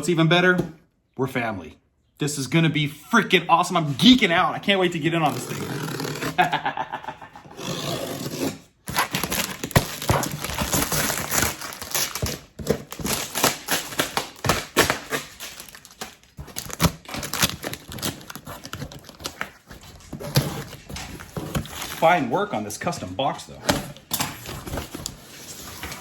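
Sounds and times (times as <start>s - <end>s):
packaging rustling and crinkling: 8.9s - 23.0s, 23.9s - 26.0s.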